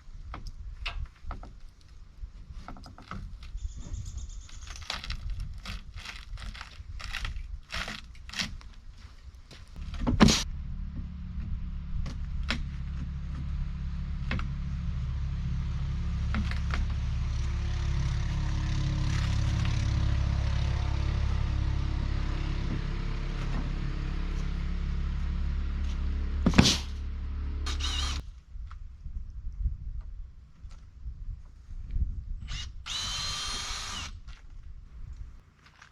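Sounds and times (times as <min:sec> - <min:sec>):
motor hum: 0:09.8 - 0:28.2, 0:32.5 - 0:34.2
loud thump: 0:26.4 - 0:27.0.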